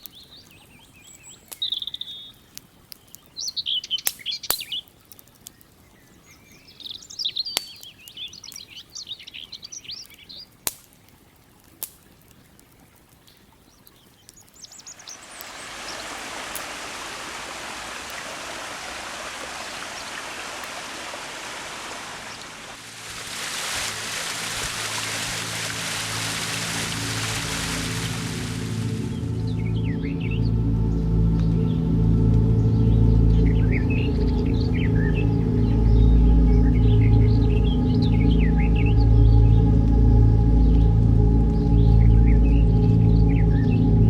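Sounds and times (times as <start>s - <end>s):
small birds chirping: 0.0s - 11.2s, 12.0s - 31.9s
campfire crackling pops: 2.5s - 5.8s, 7.5s - 9.1s, 9.8s - 29.4s
river water rushing: 14.7s - 44.0s.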